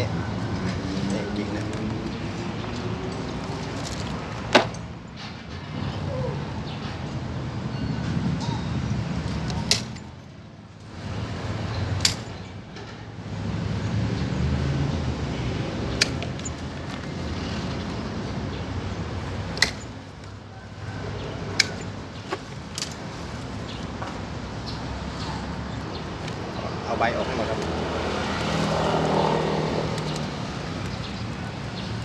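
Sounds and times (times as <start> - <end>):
hand shears snipping: 9.4 - 10.0, 15.9 - 18.1, 19.4 - 20.4, 21.4 - 23.5.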